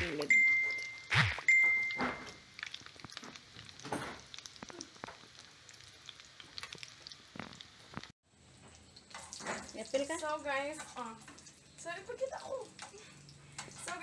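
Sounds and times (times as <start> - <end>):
meatballs sizzling in oil: 2.4 - 8.1.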